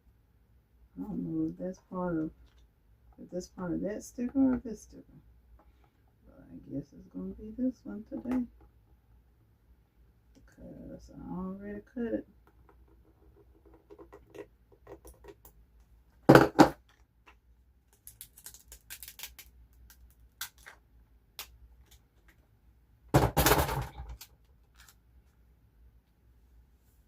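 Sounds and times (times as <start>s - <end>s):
paper crinkling: 17.9s - 20.8s.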